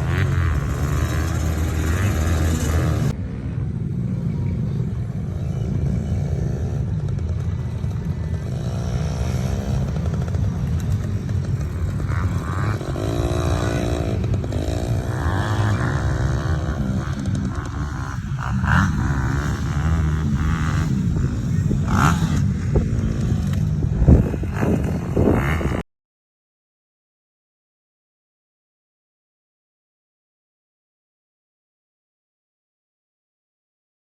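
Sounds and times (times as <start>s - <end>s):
dirt bike engine revving: 0.0s - 3.2s, 5.4s - 25.8s.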